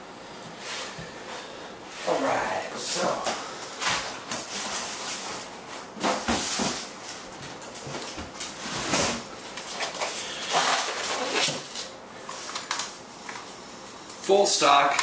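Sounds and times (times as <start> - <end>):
packaging rustling: 7.7 - 13.0.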